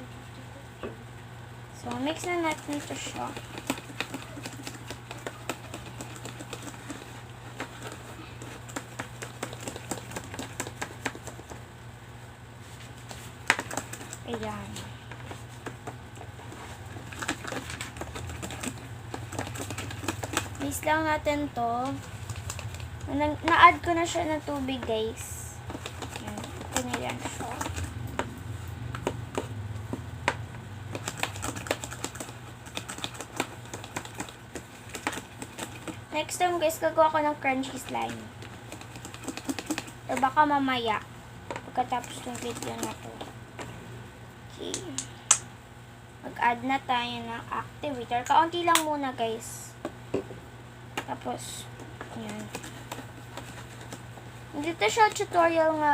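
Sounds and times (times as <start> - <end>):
steady low hum: 0.0 - 55.9
fork stirring glue in a bowl: 1.9 - 11.6, 15.3 - 25.0, 25.6 - 27.9, 30.9 - 40.4, 41.6 - 43.3, 52.1 - 55.5.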